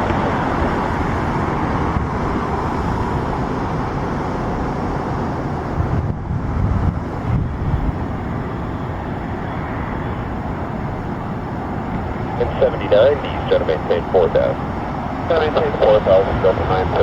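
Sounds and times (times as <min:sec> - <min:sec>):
jet engines rumbling: 0:00.0 - 0:17.0
traffic: 0:00.0 - 0:17.0
wind gusting on microphone: 0:00.0 - 0:17.0.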